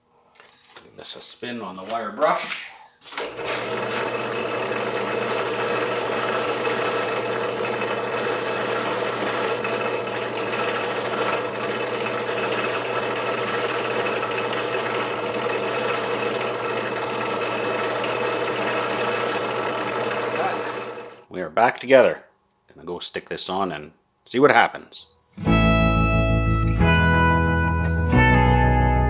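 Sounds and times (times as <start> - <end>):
wire brush wheel humming: 3.3 - 21.3
metal part scrubbed on wire brush: 5.2 - 19.6.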